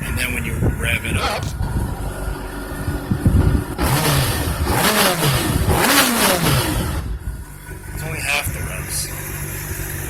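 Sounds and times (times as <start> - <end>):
motorcycle engine revving: 1.0 - 10.0
rushing intake noise: 1.1 - 2.0.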